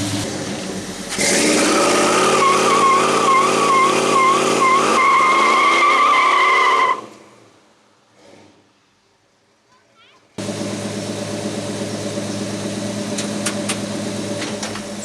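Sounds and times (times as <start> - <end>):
engine running hard: 0.0 - 5.0, 10.4 - 15.0
tires squealing: 1.1 - 7.4.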